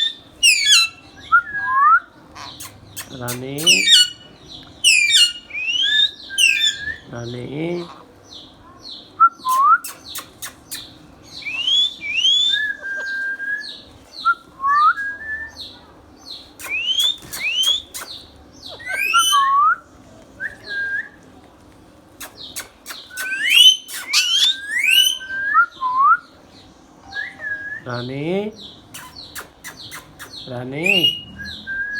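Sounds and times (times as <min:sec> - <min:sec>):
parrot whistled chirps: 0:00.0 - 0:02.0, 0:03.6 - 0:04.2, 0:04.8 - 0:07.1, 0:11.4 - 0:15.6, 0:18.8 - 0:19.8, 0:23.1 - 0:25.6, 0:27.0 - 0:27.9, 0:29.0 - 0:31.9.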